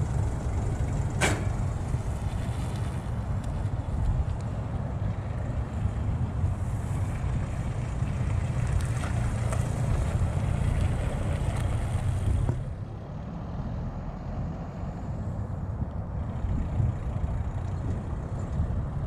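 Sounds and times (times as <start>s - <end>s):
diesel taxi engine running: 0.0s - 19.0s.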